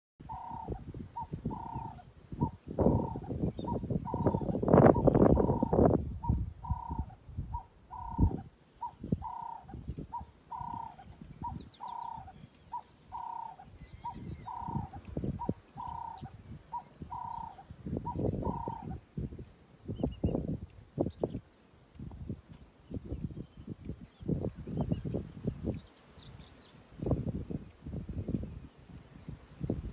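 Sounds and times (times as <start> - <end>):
dove cooing: 0.3 - 19.0.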